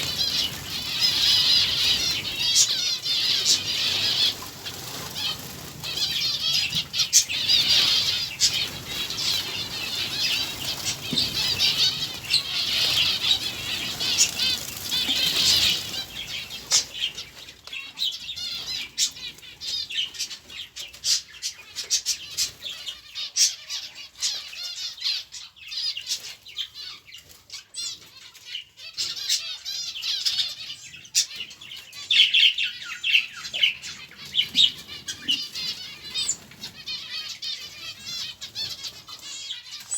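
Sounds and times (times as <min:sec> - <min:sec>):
wings fluttering: 0:00.0 - 0:22.8
small birds chattering and chirping: 0:00.0 - 0:39.9.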